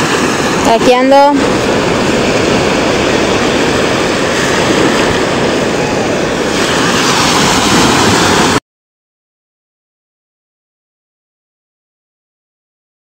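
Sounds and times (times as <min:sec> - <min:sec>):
sea surf: 0:00.0 - 0:08.6
wind: 0:00.0 - 0:08.6.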